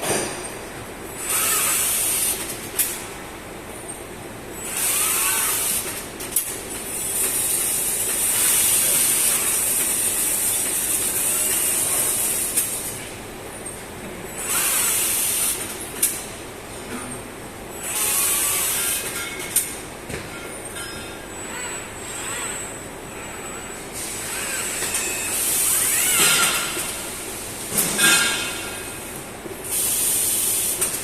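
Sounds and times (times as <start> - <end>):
robot servo motors whining: 24.2 - 27.0.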